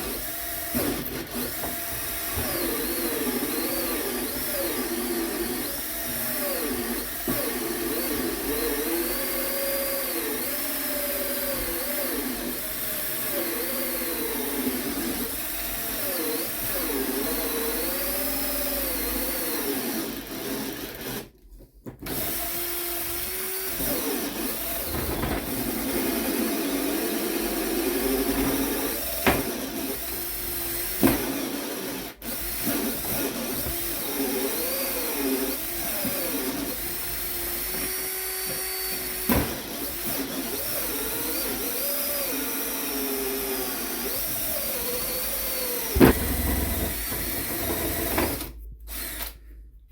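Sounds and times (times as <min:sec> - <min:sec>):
power drill with hole saw cutting: 0:00.0 - 0:21.4, 0:22.0 - 0:49.5
sharp knocks: 0:46.0 - 0:48.4.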